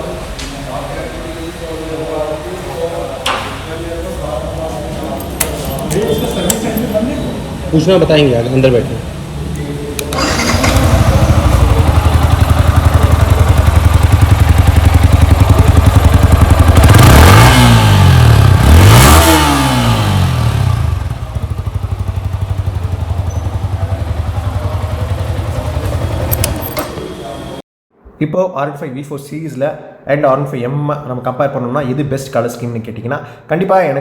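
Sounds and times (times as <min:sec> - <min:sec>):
motorcycle engine idling and revving: 0:10.0 - 0:27.6.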